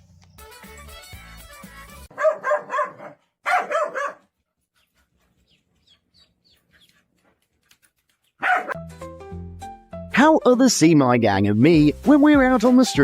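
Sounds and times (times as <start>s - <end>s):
dog barking: 2.1s - 4.4s, 8.4s - 8.8s.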